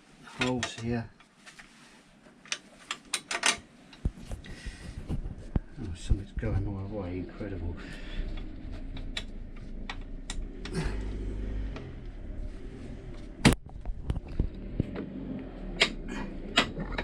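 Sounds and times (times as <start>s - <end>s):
tools and bolts clicking: 2.5s - 3.6s.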